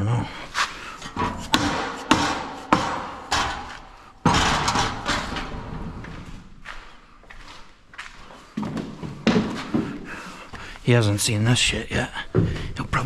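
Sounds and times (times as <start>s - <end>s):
sharp metal knocks: 1.0s - 6.2s
loud metal clanking hit: 1.0s - 6.4s.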